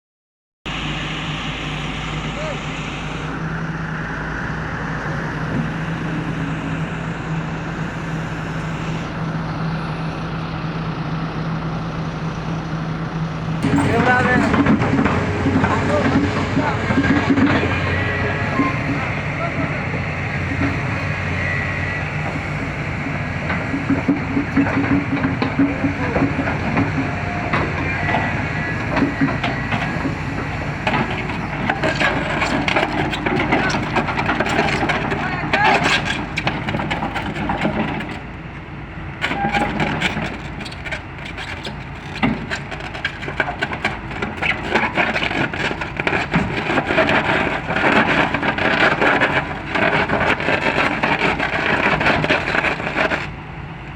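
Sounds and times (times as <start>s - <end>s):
excavator engine running: 0.7s - 53.9s
steel clanking and knocking: 13.6s - 21.4s, 22.0s - 38.3s, 39.2s - 53.3s.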